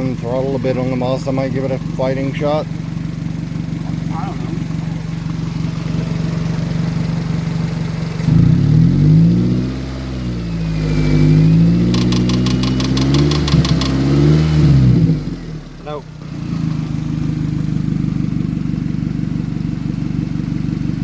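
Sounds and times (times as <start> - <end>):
car engine idling: 0.0 - 21.0
engine cranking without catching: 10.8 - 14.6
rapid clicks: 11.9 - 14.0.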